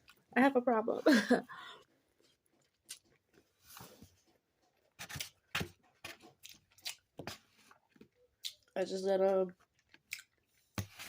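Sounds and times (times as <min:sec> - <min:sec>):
chewing: 0:01.7 - 0:08.8, 0:09.5 - 0:10.8.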